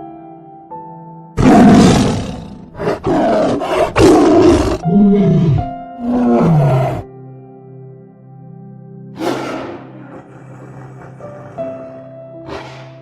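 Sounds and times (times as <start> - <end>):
soft background music: 0.0 - 13.0
animal moaning call: 1.4 - 7.1, 9.2 - 13.0
large animal roaring and growling: 1.4 - 7.1, 9.2 - 13.0.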